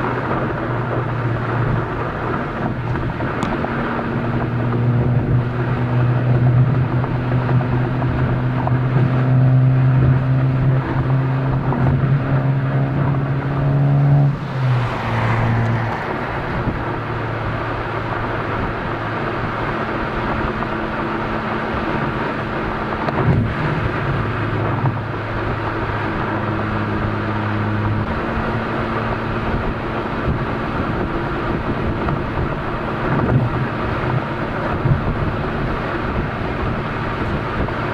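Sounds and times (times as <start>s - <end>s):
car engine exhaust note: 0.0s - 37.9s.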